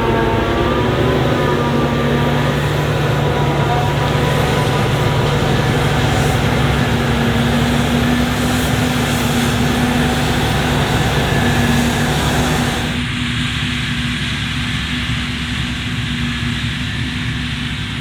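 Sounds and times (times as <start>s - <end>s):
diesel engines droning: 0.0s - 13.0s
loud rushing noise: 0.0s - 13.0s.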